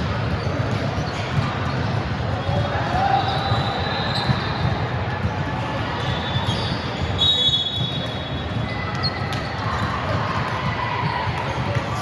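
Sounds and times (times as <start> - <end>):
brief high squeaks: 6.0 - 8.0.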